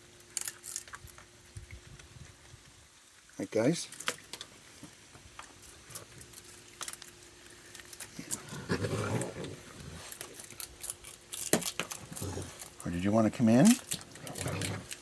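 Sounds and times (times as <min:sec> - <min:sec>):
raccoon growling: 0:07.7 - 0:15.0.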